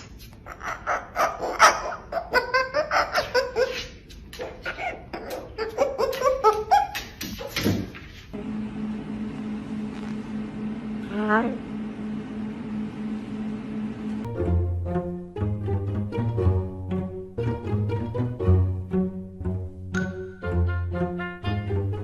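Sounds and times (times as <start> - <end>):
person laughing: 2.3 - 4.0
steady low hum: 8.4 - 14.9.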